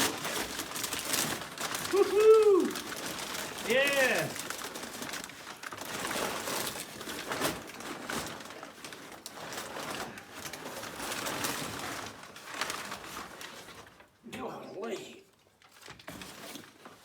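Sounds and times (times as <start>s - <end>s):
packaging rustling and crinkling: 0.0s - 14.2s, 15.3s - 17.0s
sharp crackles and knocks: 2.8s - 14.1s.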